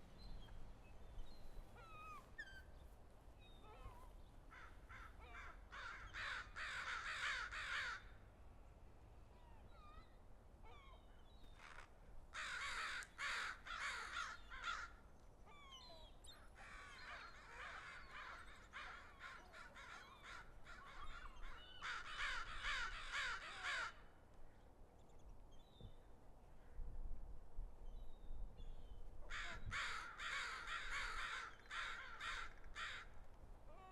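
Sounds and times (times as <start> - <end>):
crows cawing: 4.5 - 8.2, 11.6 - 15.0, 16.6 - 24.1, 29.3 - 33.2.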